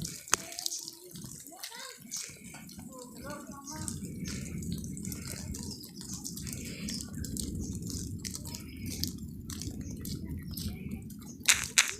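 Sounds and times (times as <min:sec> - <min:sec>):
water dripping and splashing: 0:00.0 - 0:11.9.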